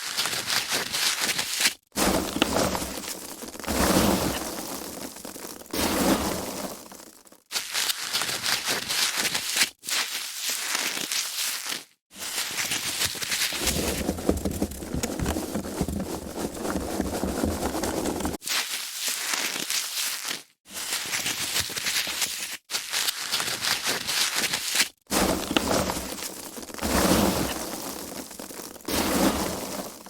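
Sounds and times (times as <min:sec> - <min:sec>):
foam packaging crinkling: 0:06.9 - 0:30.0.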